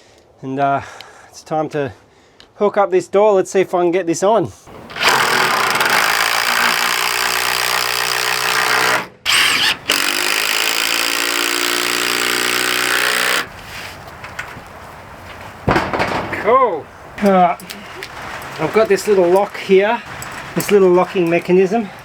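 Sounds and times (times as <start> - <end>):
power drill driving screws: 4.7 - 13.5.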